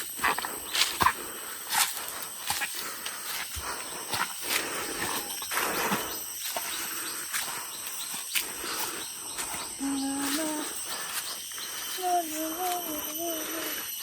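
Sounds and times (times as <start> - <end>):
footsteps and rustling on path: 0.0 - 14.0
high-pitched drone: 2.9 - 14.0
person voice holding a tone: 9.8 - 10.8, 12.0 - 13.8.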